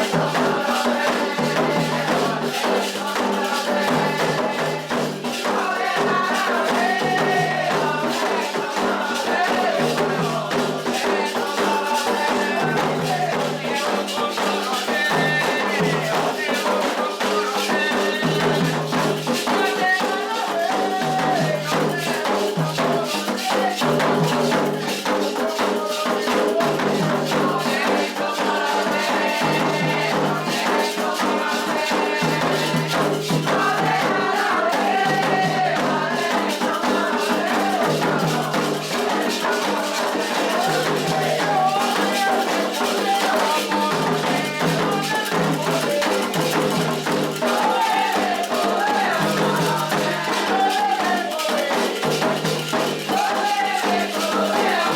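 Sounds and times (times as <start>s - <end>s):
hand drums: 0.0s - 54.9s
voices singing a chant: 0.0s - 54.9s
rattles shaking: 36.1s - 54.9s.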